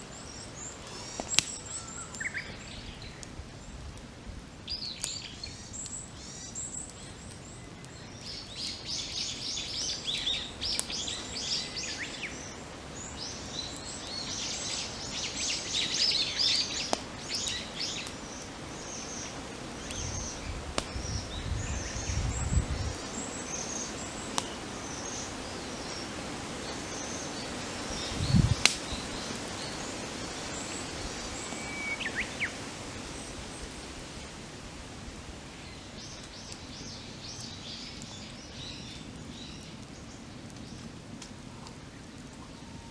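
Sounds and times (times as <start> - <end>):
wild birds chirping: 0.0 - 3.8, 4.6 - 34.4
campfire crackling and popping: 0.0 - 42.9.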